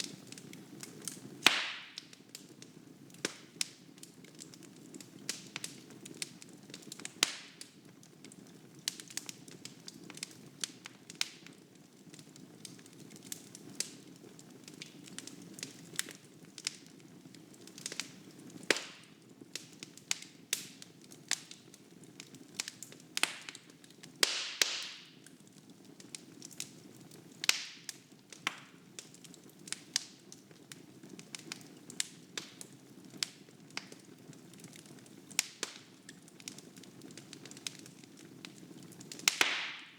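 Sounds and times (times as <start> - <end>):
wood fire crackling: 0.0 - 39.9
sharp pops and snaps: 0.4 - 2.1, 17.7 - 21.6, 22.6 - 25.2, 27.4 - 28.8, 35.4 - 35.9, 38.4 - 39.9.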